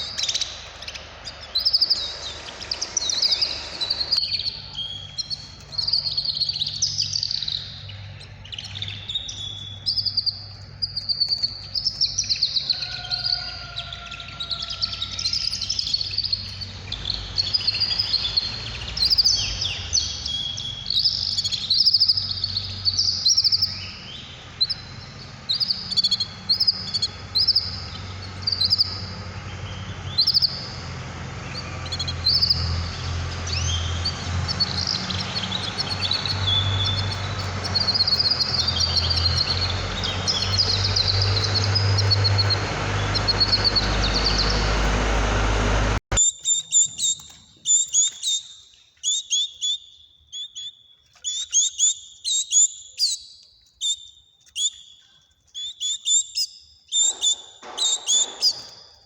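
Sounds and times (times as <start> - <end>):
steady low hum: 0.0 - 46.2
songbirds chirping and twittering: 0.0 - 59.0.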